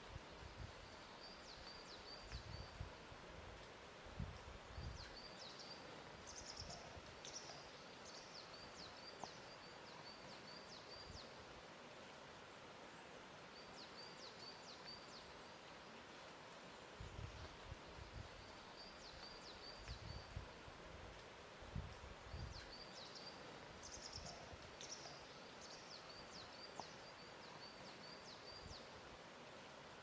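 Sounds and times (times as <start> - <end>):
low steady hiss: 0.0 - 30.0
small birds chirping: 4.7 - 11.4, 22.2 - 29.0.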